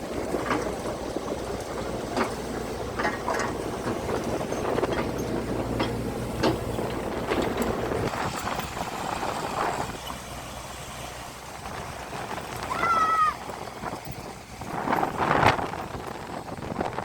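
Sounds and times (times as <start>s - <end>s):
knocks and clatter: 0.0s - 10.2s
low engine hum: 0.0s - 17.0s.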